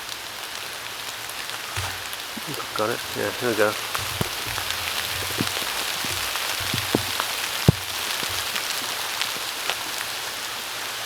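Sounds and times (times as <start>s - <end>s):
heavy rain on leaves: 0.0s - 11.0s
large drops tapping: 1.8s - 9.1s.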